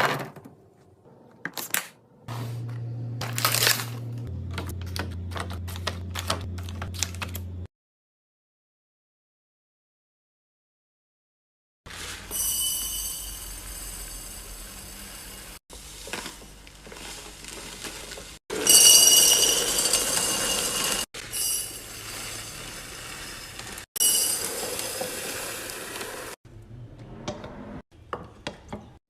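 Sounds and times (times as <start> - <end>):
glass jars and bottles clinking: 18.5 - 25.3.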